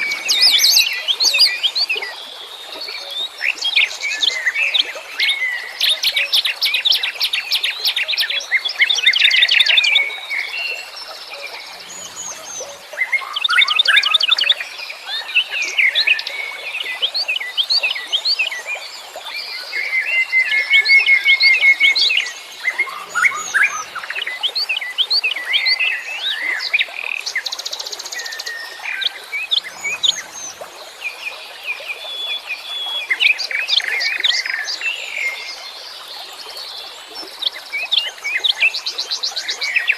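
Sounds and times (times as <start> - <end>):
songbirds chirping and singing: 8.5 - 14.7, 19.9 - 31.2.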